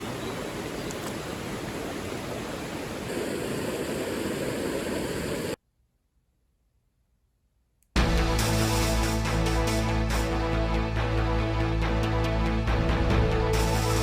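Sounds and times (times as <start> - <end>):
stream water rushing: 0.0 - 5.6.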